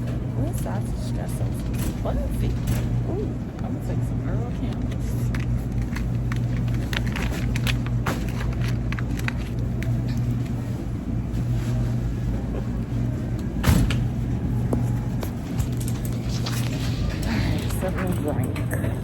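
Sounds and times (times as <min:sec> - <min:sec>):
refrigeration and ventilation hum: 0:00.0 - 0:19.0
packages rustling and clicking: 0:04.5 - 0:12.0.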